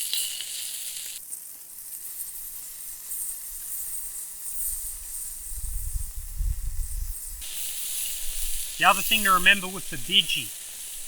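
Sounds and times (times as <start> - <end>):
meat sizzling on a hotplate: 0.0 - 11.0
wind rumble on microphone: 5.0 - 7.4.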